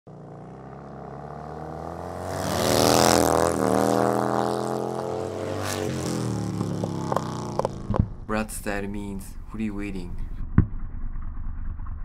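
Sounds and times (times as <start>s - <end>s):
motorcycle engine running: 0.1s - 8.3s.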